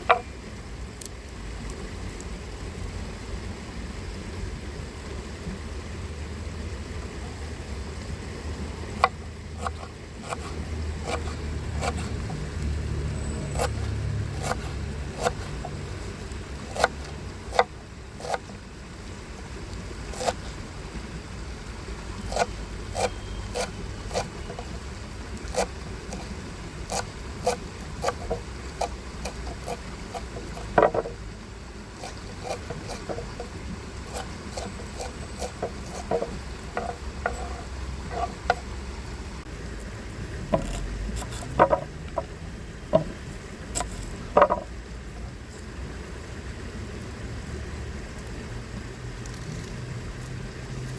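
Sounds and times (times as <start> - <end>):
low steady rumble: 0.0 - 50.9
sharp clicks and knocks: 26.9 - 31.2, 32.0 - 38.7, 40.5 - 43.2, 43.8 - 44.7.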